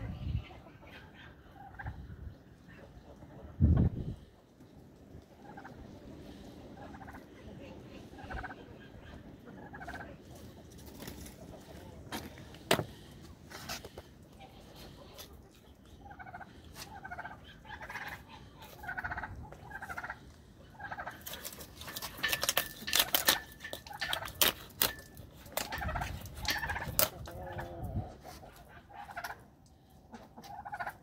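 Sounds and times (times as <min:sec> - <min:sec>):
fowl rattling calls: 0:16.0 - 0:27.4.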